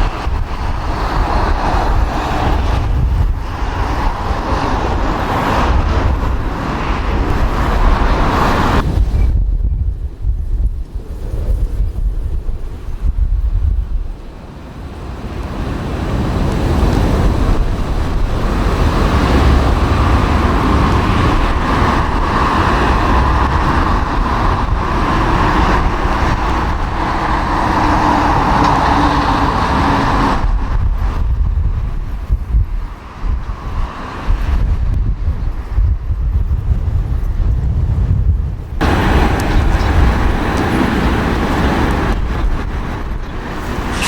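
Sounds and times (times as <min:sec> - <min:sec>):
jet airliner passing overhead: 0:00.0 - 0:09.4, 0:10.8 - 0:31.4, 0:38.8 - 0:44.0.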